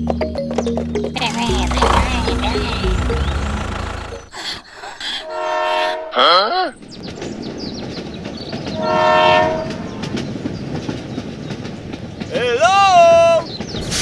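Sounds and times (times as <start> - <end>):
sliding tone: 1.2 - 4.4
steady rumbling noise: 1.2 - 4.4.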